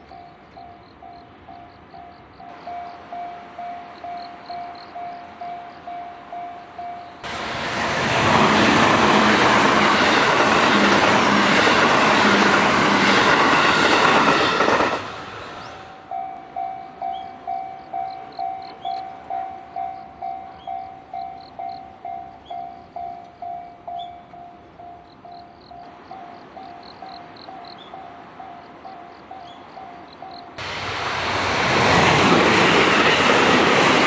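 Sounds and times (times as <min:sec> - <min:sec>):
train wheels rushing on rail: 0:02.4 - 0:16.2, 0:25.8 - 0:34.0.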